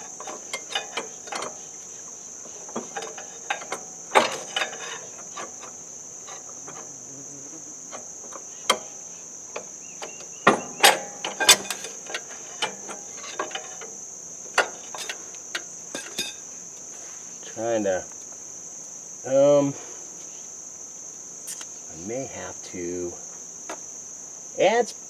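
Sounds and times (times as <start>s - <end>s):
metal tools clinking: 0.0s - 6.9s, 7.9s - 16.5s.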